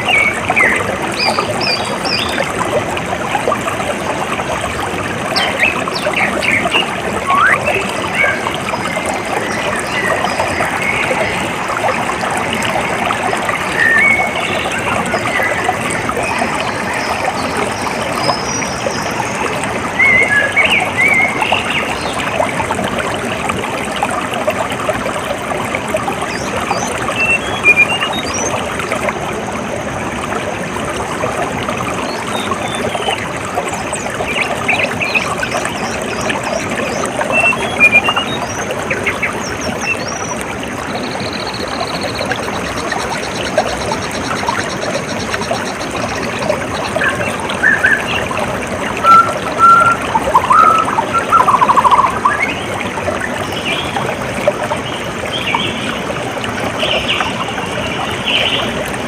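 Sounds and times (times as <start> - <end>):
water trickling: 0.0 - 59.0
high bird chirps: 5.4 - 8.4, 49.0 - 52.5.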